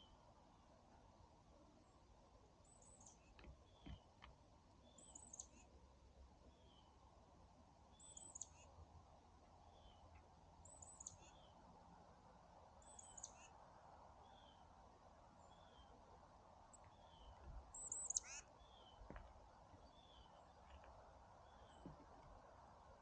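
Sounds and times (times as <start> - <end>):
outdoor background noise: 0.0 - 23.0
wild birds calling: 16.7 - 22.2.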